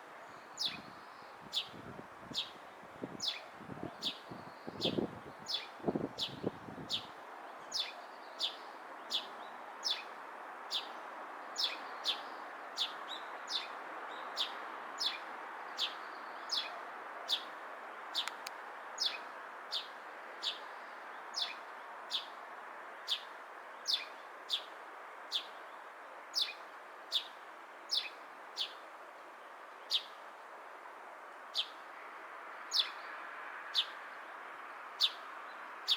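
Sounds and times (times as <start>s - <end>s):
sparrow chirping: 0.6s - 1.0s, 3.2s - 7.1s, 7.7s - 10.1s, 23.1s - 24.7s, 26.4s - 28.8s, 35.0s - 35.2s.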